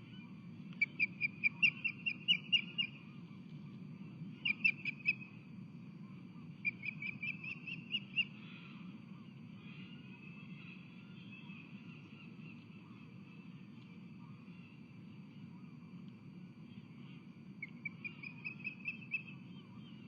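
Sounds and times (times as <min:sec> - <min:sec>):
low background rumble: 0:00.0 - 0:20.0
bird whistled chirps: 0:00.8 - 0:03.0, 0:04.4 - 0:05.3, 0:06.7 - 0:08.3, 0:17.6 - 0:20.0.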